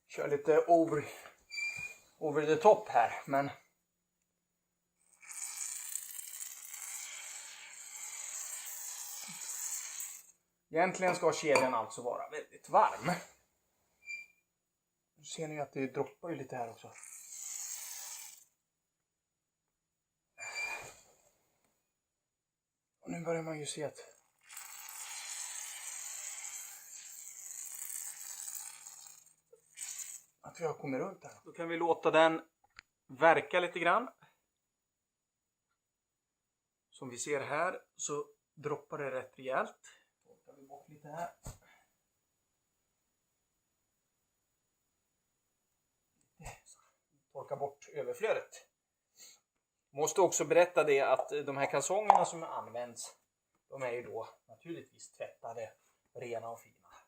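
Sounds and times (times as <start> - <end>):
aerosol spray can hissing: 6.7 - 10.3.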